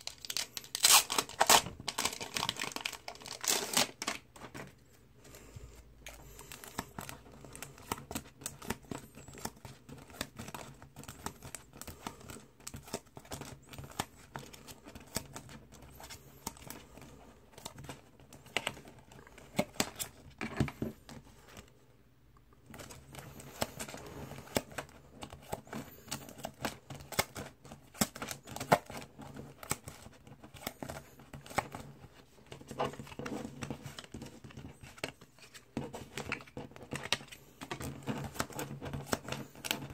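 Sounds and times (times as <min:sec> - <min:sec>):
packaging crinkling and tearing: 0:00.0 - 0:04.6.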